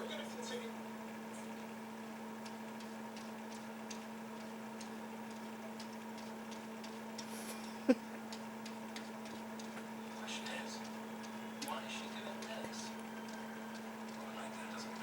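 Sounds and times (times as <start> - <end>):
steady low hum: 0.0 - 15.0
faint irregular ticks: 2.3 - 7.4, 8.3 - 15.0.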